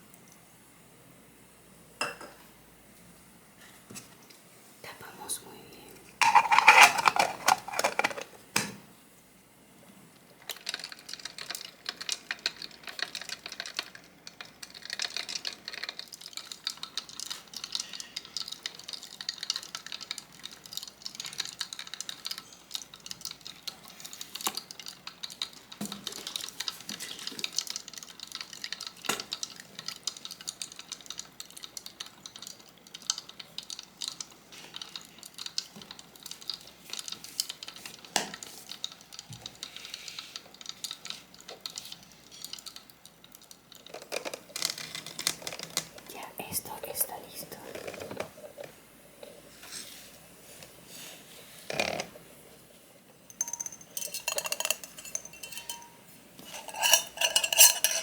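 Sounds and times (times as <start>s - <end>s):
spoon clinking on dishes: 6.2s - 7.9s, 53.3s - 58.0s
spoon scraping and tapping: 6.2s - 8.3s, 53.3s - 58.0s.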